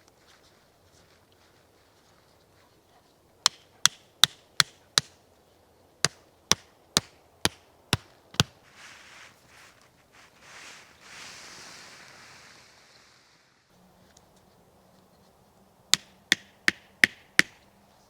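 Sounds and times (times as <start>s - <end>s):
hand tool striking wood: 3.4s - 5.1s, 6.0s - 8.6s, 15.9s - 17.6s.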